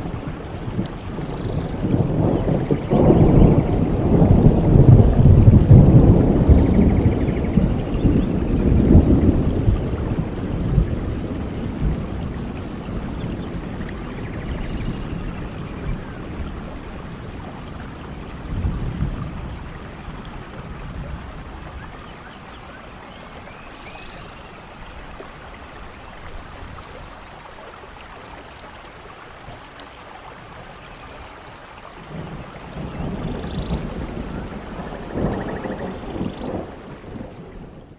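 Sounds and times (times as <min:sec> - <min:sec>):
rolling thunder: 0:00.0 - 0:22.0, 0:32.0 - 0:37.9
steady rain: 0:00.0 - 0:37.9.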